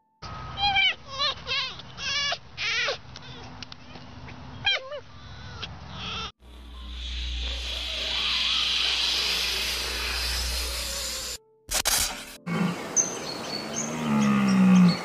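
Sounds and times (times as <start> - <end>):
steady rushing hiss: 6.4 - 11.4.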